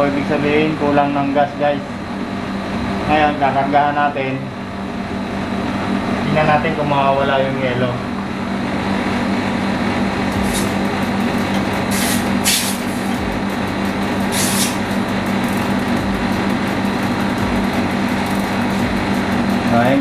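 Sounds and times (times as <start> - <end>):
air conditioner unit humming: 0.0 - 20.0
short hisses: 11.9 - 12.9, 14.3 - 14.8.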